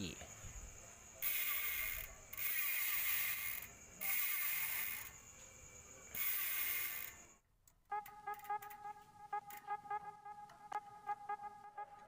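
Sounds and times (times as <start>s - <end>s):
bicycle freehub ratcheting: 1.2s - 5.2s, 6.1s - 7.3s.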